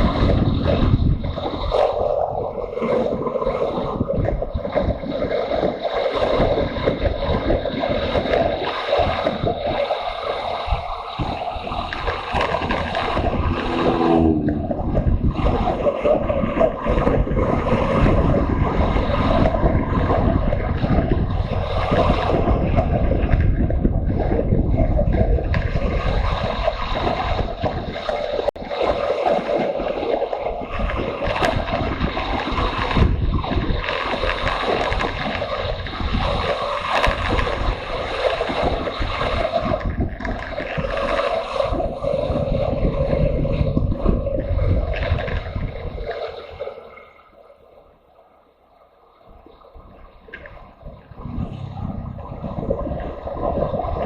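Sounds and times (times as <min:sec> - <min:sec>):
wind rushing over microphone: 0:00.0 - 0:47.4, 0:49.2 - 0:54.0
motorcycle engine running: 0:13.1 - 0:15.2.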